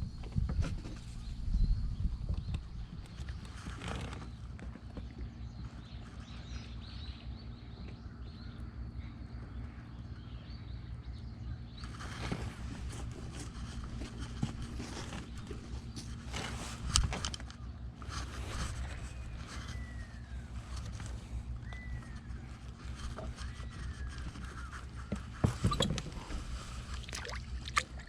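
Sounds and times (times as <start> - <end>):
steady low rumble: 0.0 - 3.5.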